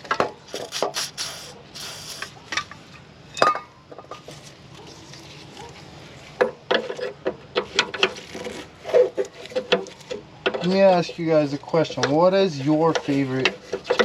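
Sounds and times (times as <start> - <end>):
aerosol spray hissing: 0.5 - 2.3.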